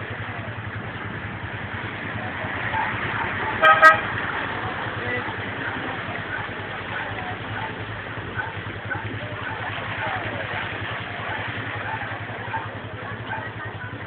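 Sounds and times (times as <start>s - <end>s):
vehicle horn toots: 3.6s - 4.2s.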